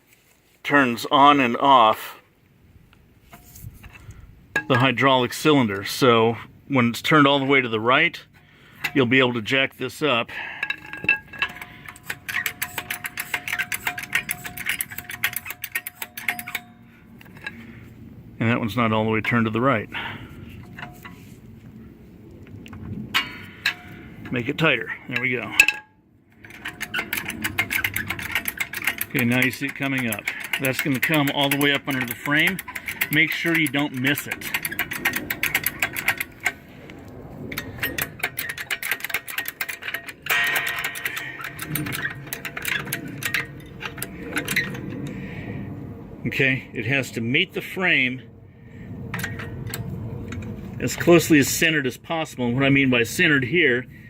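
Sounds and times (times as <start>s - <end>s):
metallic clicking and rattling of floor jack: 10.4s - 17.6s, 26.4s - 36.6s, 37.5s - 45.1s.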